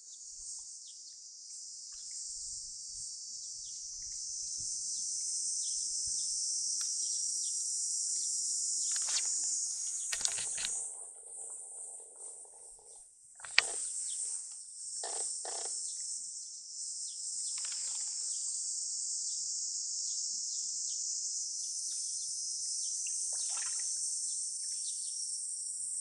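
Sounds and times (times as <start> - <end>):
insects chorus: 0.0 - 26.0
sharp click: 10.0 - 10.8, 13.4 - 13.8.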